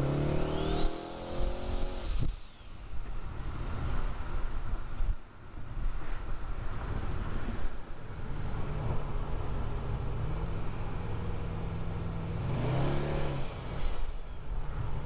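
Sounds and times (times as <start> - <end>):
car engine accelerating: 0.0 - 2.5.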